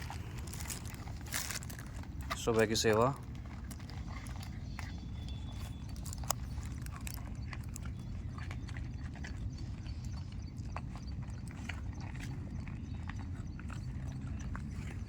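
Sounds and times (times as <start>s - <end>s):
low rumble: 0.0s - 2.4s
dog crunching food: 0.0s - 15.0s.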